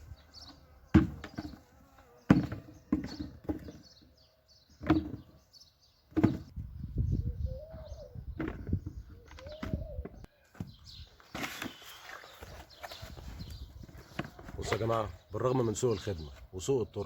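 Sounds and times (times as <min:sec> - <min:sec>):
small birds chirping: 0:00.0 - 0:17.0
dove cooing: 0:07.2 - 0:10.3
rustling of earth: 0:08.2 - 0:15.3.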